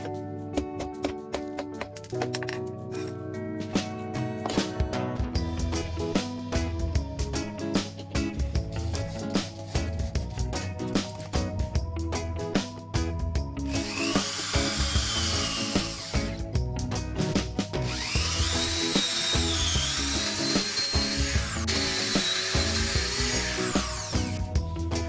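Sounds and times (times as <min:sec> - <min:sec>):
background music with steady beat: 0:00.0 - 0:25.0
electric drill whining: 0:13.7 - 0:16.5, 0:17.9 - 0:24.5.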